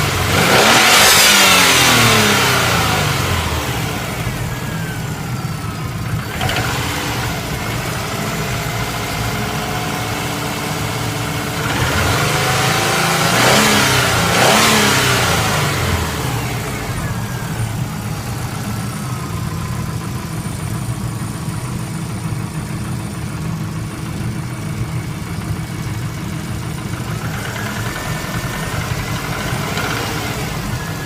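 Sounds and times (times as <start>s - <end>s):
car engine idling after a rev: 1.6s - 11.3s, 14.8s - 31.0s.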